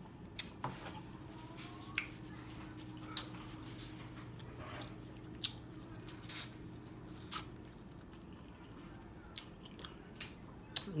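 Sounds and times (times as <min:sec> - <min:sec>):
low steady hum: 0:00.0 - 0:11.0
person chewing with mouth clicks: 0:05.2 - 0:06.5, 0:07.2 - 0:11.0.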